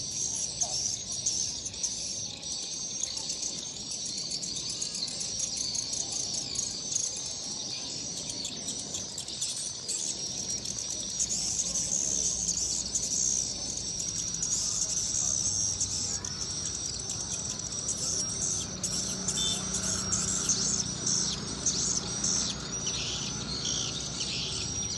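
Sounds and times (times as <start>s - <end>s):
swiftlets twittering: 8.8s - 24.9s.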